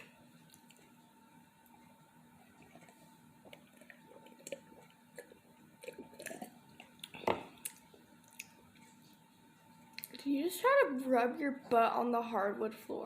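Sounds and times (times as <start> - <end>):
close-up chewing: 0.4 - 1.0, 1.6 - 9.2.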